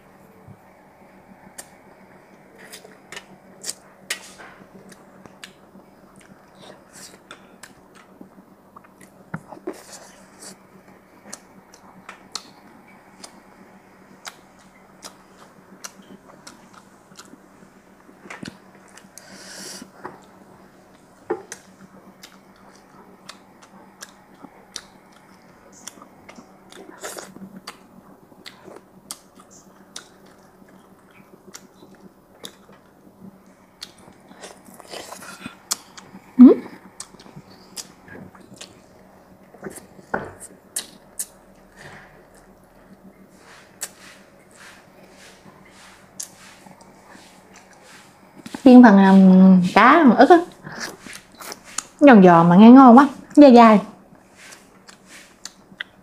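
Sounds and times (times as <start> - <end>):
person chewing: 2.6 - 10.6, 14.2 - 17.4, 21.5 - 32.9, 33.8 - 48.6, 50.5 - 52.0, 54.4 - 56.0.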